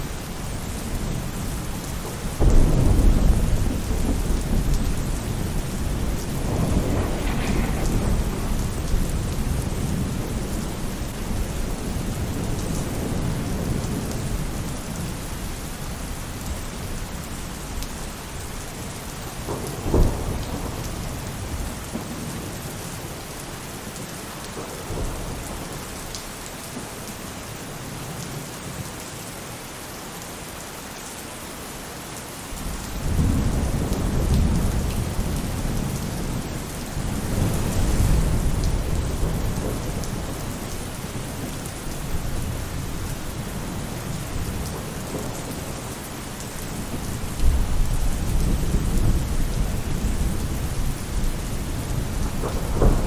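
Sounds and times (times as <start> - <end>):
rain on a roof: 0.0 - 53.0
thunder rumbling: 0.1 - 23.8, 32.6 - 53.0.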